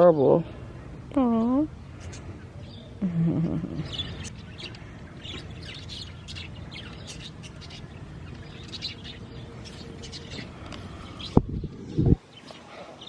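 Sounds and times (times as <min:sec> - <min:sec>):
budgerigars chirping: 0:03.8 - 0:11.4.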